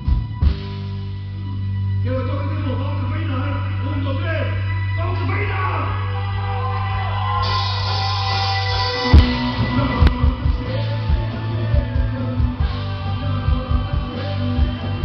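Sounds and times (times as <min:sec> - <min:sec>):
bass guitar: 0:00.0 - 0:15.0
electric guitar: 0:06.0 - 0:15.0
drum kit kick and snare: 0:07.4 - 0:15.0.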